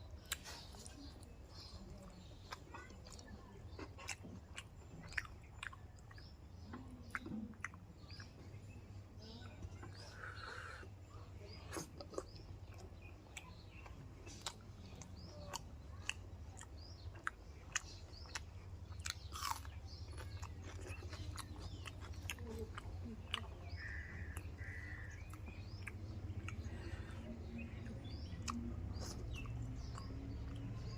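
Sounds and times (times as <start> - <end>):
birds chirping faintly: 0.0 - 30.9
person chewing crunchy food: 0.1 - 8.8, 9.7 - 30.9.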